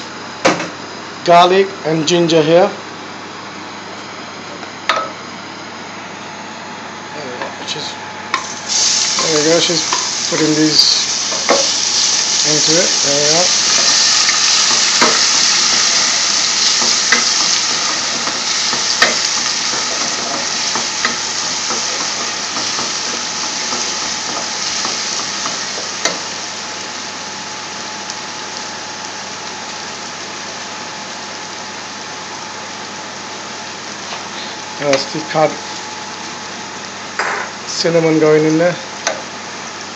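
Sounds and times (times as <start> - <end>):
food sizzling in hot oil: 8.3 - 37.5.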